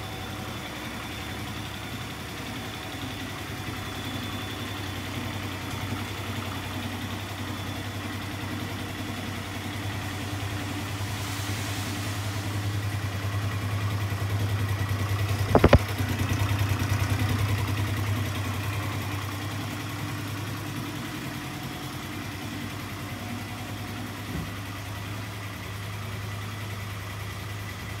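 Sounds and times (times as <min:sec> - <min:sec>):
scooter engine idling: 0:00.0 - 0:28.0.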